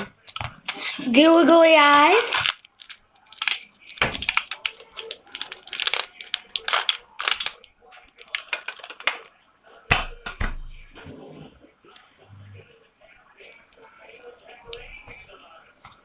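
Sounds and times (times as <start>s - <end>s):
plastic googly eyes rattling: 1.8s - 7.6s, 8.2s - 9.3s.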